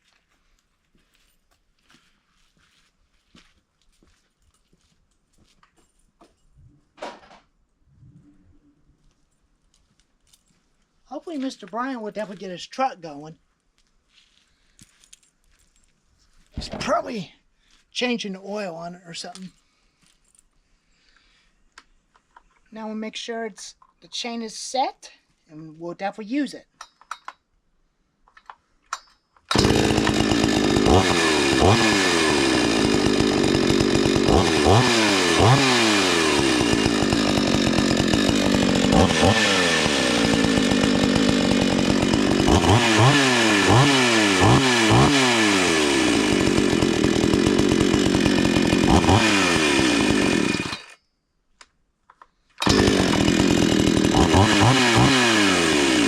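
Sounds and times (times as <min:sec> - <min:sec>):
chainsaw revving: 0:29.5 - 0:51.0, 0:52.6 - 0:56.0.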